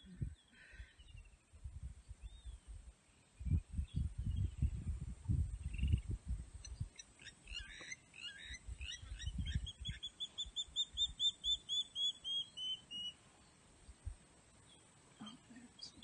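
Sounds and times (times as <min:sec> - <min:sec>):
bird calling with repeated notes: 0:06.6 - 0:13.2.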